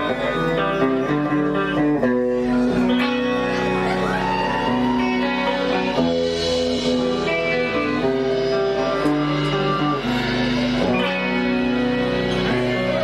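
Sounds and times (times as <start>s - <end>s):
guitar chords: 0.0s - 13.0s
live rock band playing: 0.0s - 13.0s.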